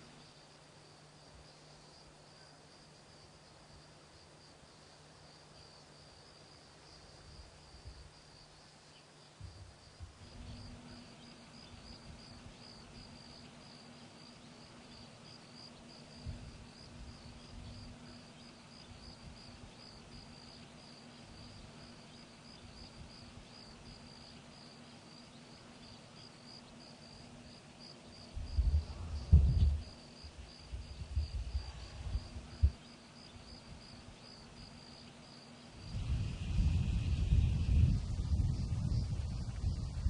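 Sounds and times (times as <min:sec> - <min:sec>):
crickets chirping: 0:00.0 - 0:40.0
faint low hum: 0:00.0 - 0:40.0
low rumbling: 0:28.4 - 0:32.8, 0:35.8 - 0:40.0.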